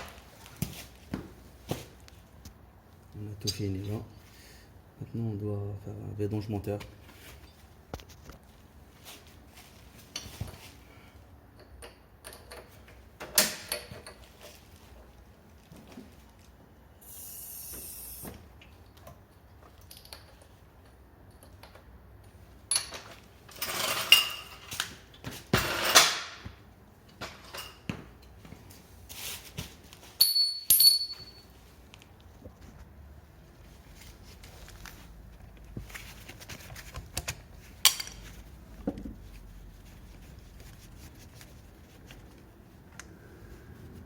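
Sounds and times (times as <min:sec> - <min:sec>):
short hiss: 0:17.0 - 0:18.2
metal tools clinking: 0:30.2 - 0:31.4.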